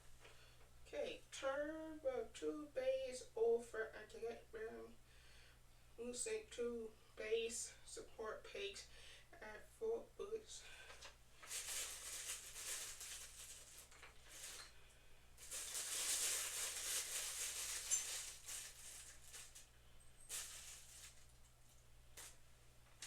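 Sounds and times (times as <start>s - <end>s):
rustling packaging and parts: 10.9s - 23.0s.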